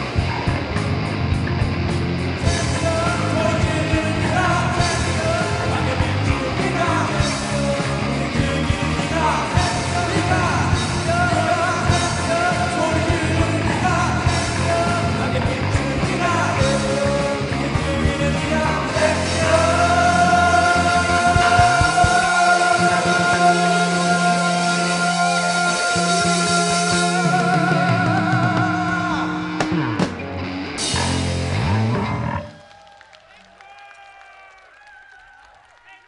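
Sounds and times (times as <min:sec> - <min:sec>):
rock band playing: 0:00.0 - 0:32.6
lead singer singing: 0:02.4 - 0:30.2.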